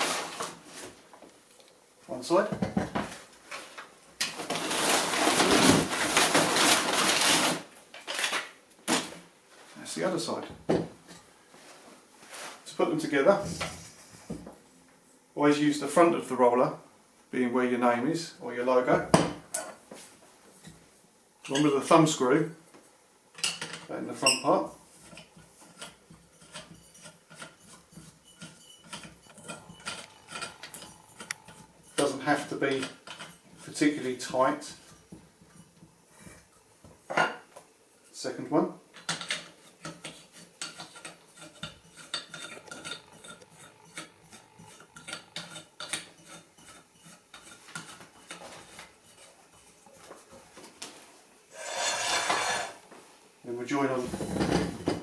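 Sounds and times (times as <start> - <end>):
packaging rustling and crinkling: 3.5 - 9.2.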